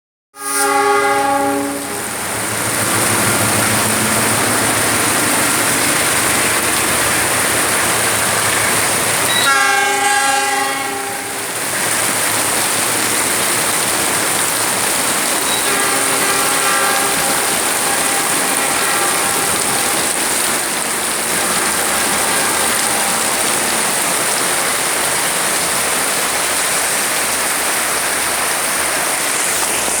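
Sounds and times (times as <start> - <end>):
locomotive horn blasts: 0.4 - 12.8, 15.1 - 25.6
passing train running noise: 0.4 - 30.0.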